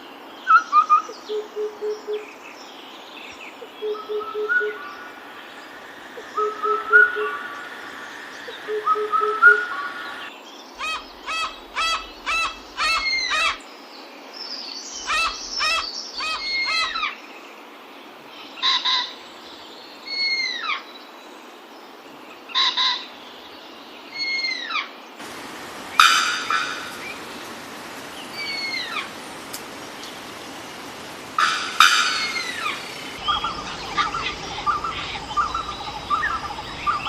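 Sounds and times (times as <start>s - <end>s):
birds ringing calls: 3.8s - 13.6s, 25.2s - 37.0s.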